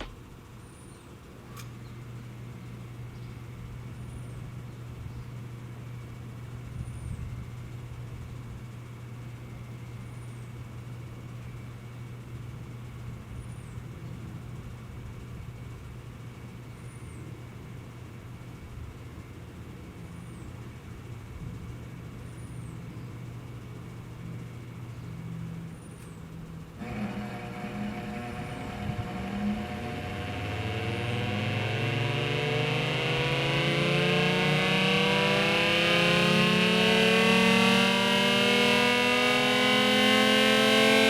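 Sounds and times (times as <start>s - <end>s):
siren motor humming: 26.6s - 41.0s
high steady tones: 26.8s - 41.0s.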